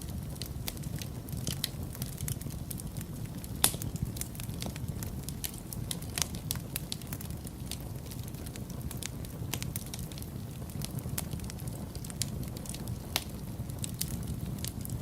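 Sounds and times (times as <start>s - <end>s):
wood fire crackling: 0.0s - 15.0s
loud pop of fire: 1.9s - 8.1s.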